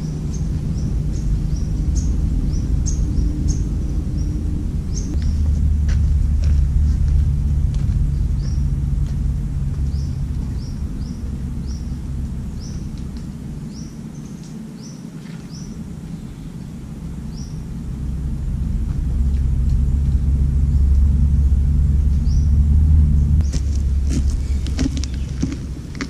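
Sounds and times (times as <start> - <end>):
bird chirping: 0.0 - 5.6, 8.0 - 8.8, 9.7 - 17.8, 22.0 - 25.8
low rumble: 0.0 - 26.0.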